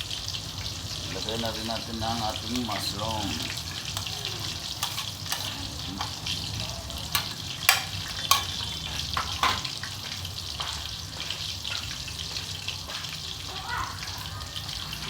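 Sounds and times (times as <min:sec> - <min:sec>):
pan sizzling: 0:00.0 - 0:15.0
utensil clicking against pan: 0:03.6 - 0:10.8.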